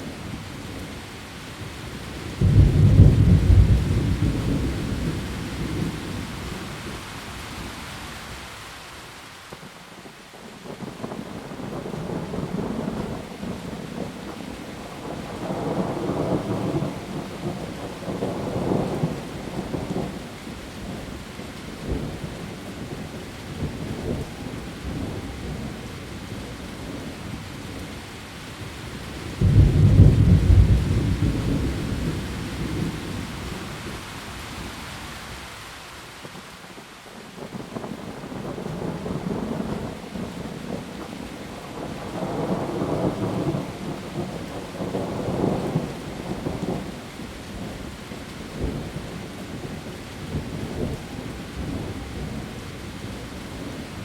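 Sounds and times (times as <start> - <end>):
heavy rain on leaves: 0.0 - 54.0
thunder rumbling: 2.0 - 6.6, 29.3 - 33.9
loud thunderclap: 2.4 - 5.9, 29.4 - 33.0.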